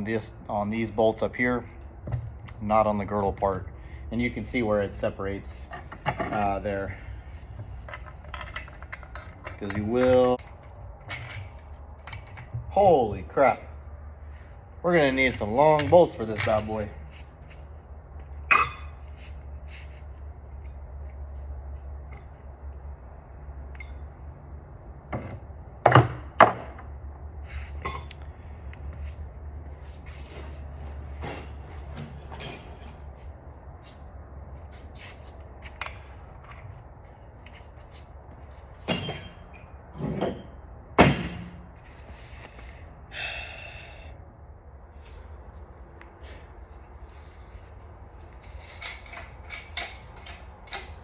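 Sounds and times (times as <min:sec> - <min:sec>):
metal tools clinking: 0:31.1 - 0:33.2, 0:38.8 - 0:41.6
sharp metal clanks: 0:38.8 - 0:41.7.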